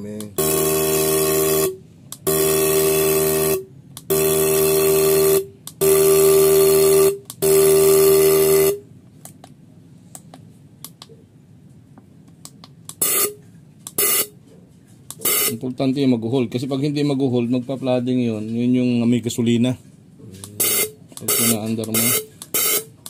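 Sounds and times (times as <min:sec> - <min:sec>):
fuel injectors buzzing: 0:00.2 - 0:08.8, 0:12.9 - 0:14.4, 0:15.1 - 0:15.6, 0:20.4 - 0:23.0.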